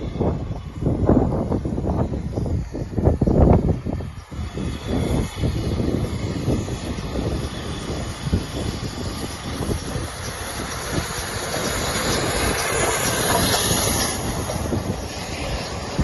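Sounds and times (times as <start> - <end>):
wheel squeal: 3.9 - 16.0
steam train clattering past: 6.1 - 16.0.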